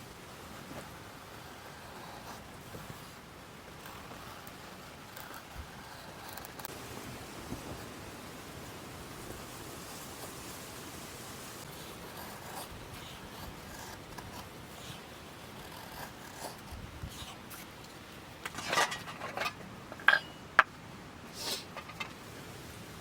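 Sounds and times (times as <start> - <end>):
steady hiss: 0.0 - 23.0
cookware rustling and clatter: 18.4 - 20.4.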